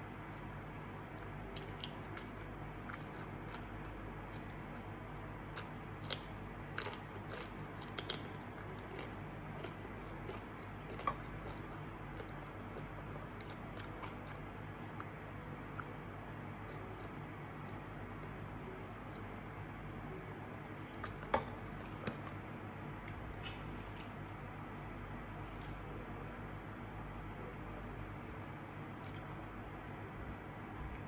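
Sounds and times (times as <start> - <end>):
steady low hum: 0.0 - 31.0
crunchy bites and chewing: 5.6 - 14.4.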